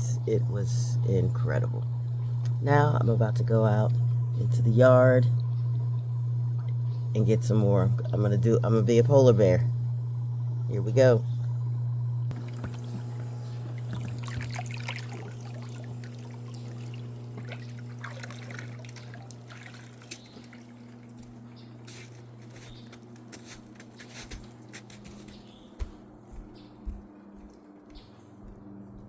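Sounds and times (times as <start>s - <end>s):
low pump hum: 0.0s - 29.0s
water trickling and dripping: 3.8s - 7.2s, 12.3s - 22.0s.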